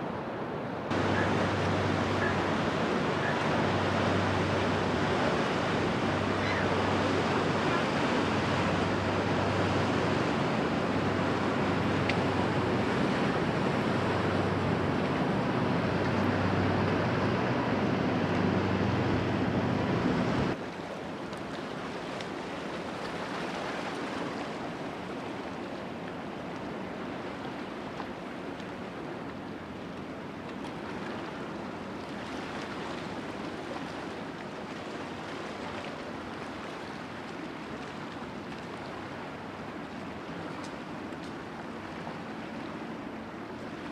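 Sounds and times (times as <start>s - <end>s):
rushing water: 0.0s - 43.9s
wind: 0.0s - 43.9s
ship diesel engine humming: 0.9s - 20.6s.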